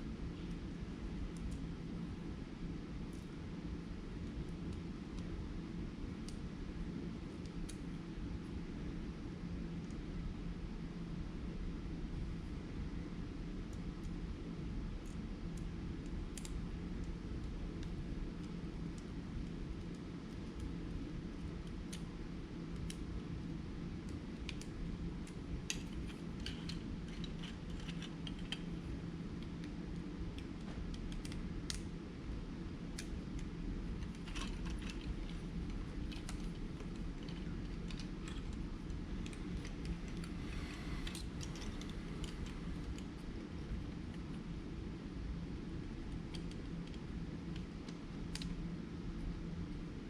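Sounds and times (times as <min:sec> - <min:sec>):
steady low hum: 0:00.0 - 0:50.0
plastic parts clicking: 0:25.7 - 0:28.7, 0:34.0 - 0:43.0.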